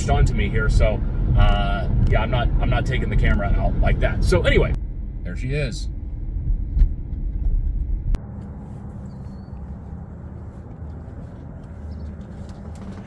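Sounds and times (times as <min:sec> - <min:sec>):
heavy low rumble: 0:00.0 - 0:13.0
low mechanical hum: 0:05.9 - 0:13.0.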